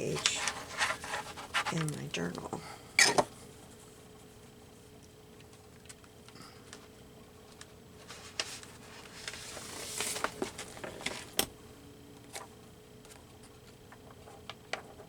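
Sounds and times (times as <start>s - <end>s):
paper rustling and sliding: 0.0s - 1.8s, 8.0s - 11.4s.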